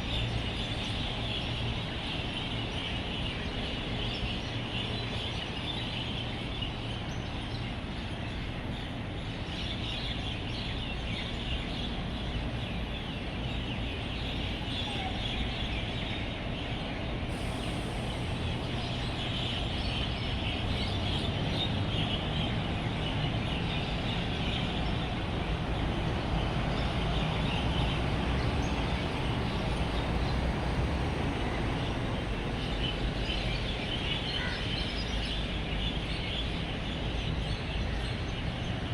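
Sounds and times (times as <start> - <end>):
road traffic rumble: 0.0 - 38.9.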